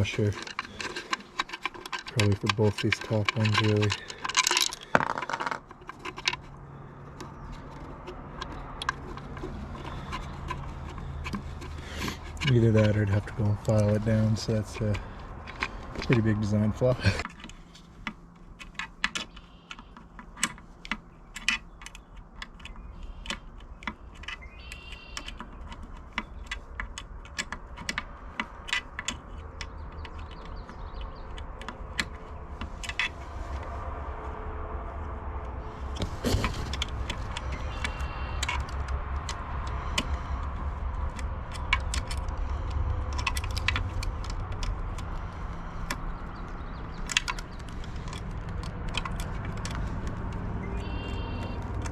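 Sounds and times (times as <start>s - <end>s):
metal hardware clinking: 0.0s - 6.6s
low rumble: 32.2s - 37.7s.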